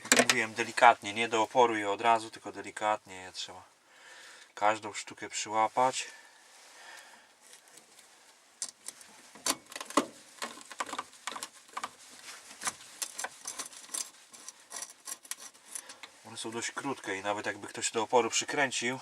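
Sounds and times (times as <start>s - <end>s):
screws and tool clicking: 13.0s - 16.1s.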